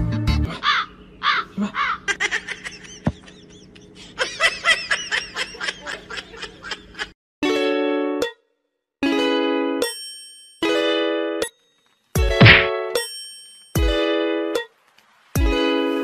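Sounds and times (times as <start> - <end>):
person giggling: 1.6 - 7.1.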